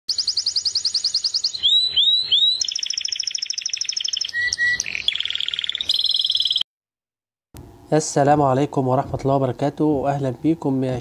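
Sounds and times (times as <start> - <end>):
rising bird whistles: 0.1 - 6.6
bird chirping in trills: 0.1 - 6.7.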